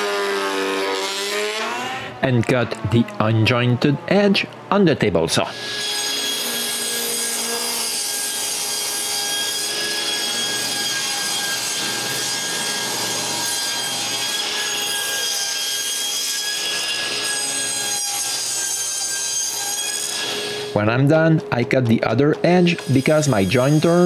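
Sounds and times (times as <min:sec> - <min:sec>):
table saw ripping wood: 0:00.0 - 0:03.2, 0:05.5 - 0:20.8.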